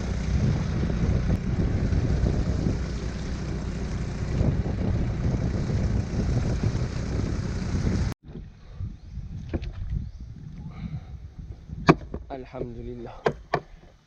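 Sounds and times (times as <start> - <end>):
kayak motor droning: 0.0 - 9.9
wind rumbling on microphone: 0.0 - 13.2.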